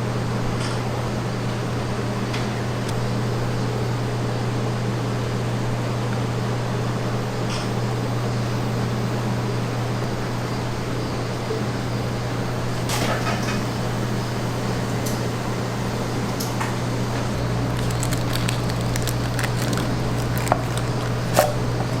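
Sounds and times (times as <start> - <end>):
motor humming: 14.0 - 22.0.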